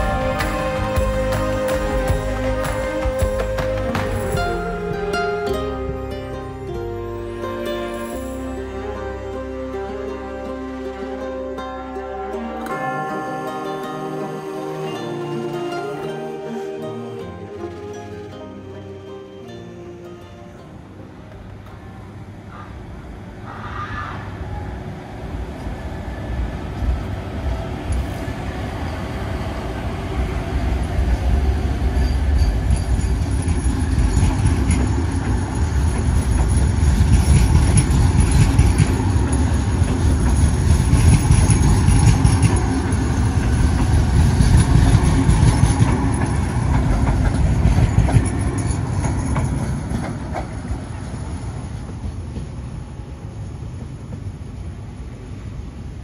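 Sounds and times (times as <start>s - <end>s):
wheels clicking on rails: 0.0s - 6.0s, 25.5s - 55.2s
train wheels rumbling: 0.0s - 11.2s, 24.0s - 56.0s.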